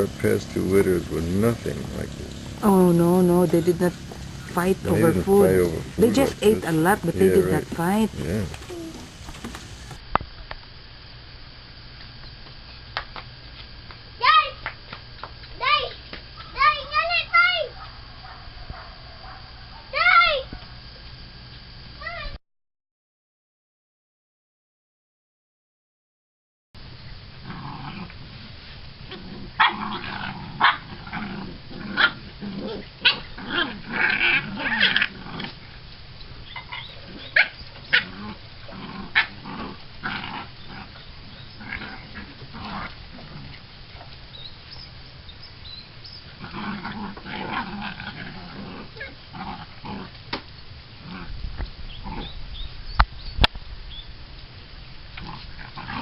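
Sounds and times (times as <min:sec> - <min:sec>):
puppies growling and snarling: 0:00.0 - 0:10.0, 0:27.4 - 0:44.5, 0:46.2 - 0:50.3, 0:51.0 - 0:52.7, 0:55.2 - 0:56.0
puppies yapping: 0:00.0 - 0:10.0, 0:29.5 - 0:30.9, 0:31.9 - 0:35.6, 0:36.4 - 0:44.9.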